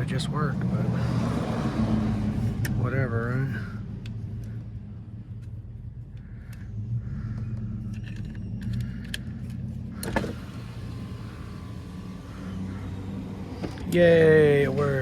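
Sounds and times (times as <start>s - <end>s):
clicks and rattles of car door parts: 8.0s - 11.3s, 13.5s - 14.1s.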